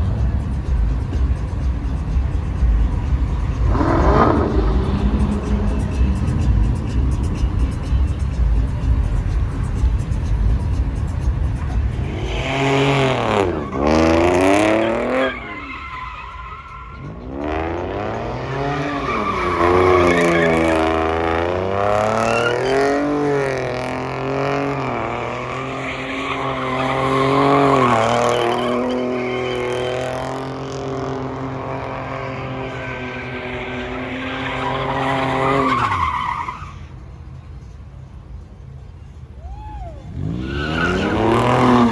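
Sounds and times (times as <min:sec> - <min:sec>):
car engine revving: 0:00.0 - 0:36.8, 0:40.1 - 0:41.9
tyres squealing: 0:11.0 - 0:31.0, 0:31.6 - 0:37.0, 0:39.4 - 0:41.9.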